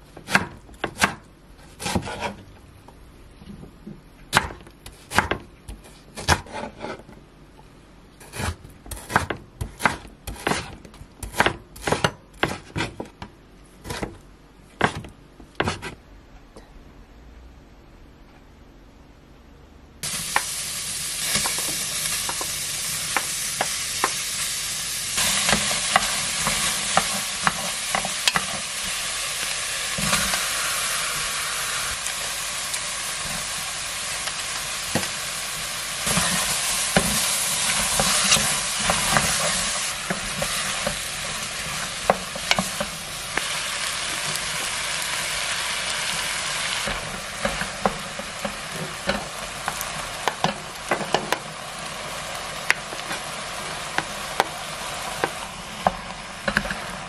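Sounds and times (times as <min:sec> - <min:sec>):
wooden spatula scraping a pot: 0:01.6 - 0:02.5, 0:05.8 - 0:07.1, 0:36.0 - 0:43.0
food sizzling in a pot: 0:20.0 - 0:57.0.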